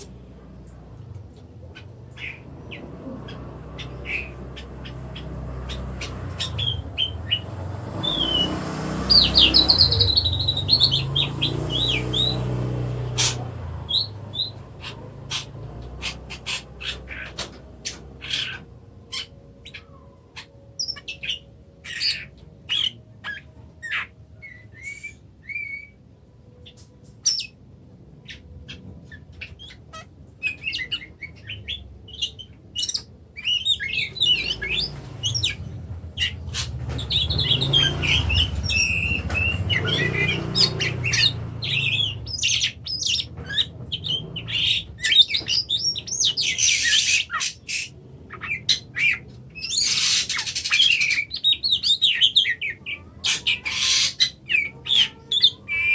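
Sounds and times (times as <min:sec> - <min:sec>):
harsh noisy bird call: 0:02.1 - 0:26.0, 0:29.4 - 0:55.9
bird chirps and whistles: 0:08.0 - 0:12.4.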